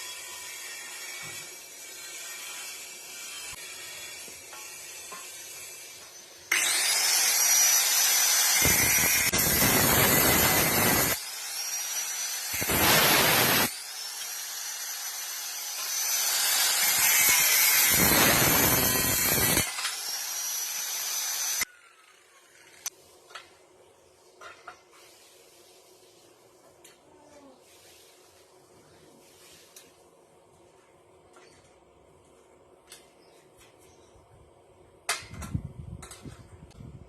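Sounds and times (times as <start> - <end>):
grinder grinding metal: 0.0 - 21.7
angle grinder whining: 0.0 - 22.9.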